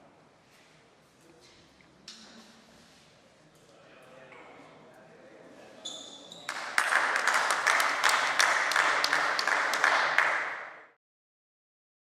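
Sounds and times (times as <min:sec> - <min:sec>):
many hands clapping: 0:06.5 - 0:11.0.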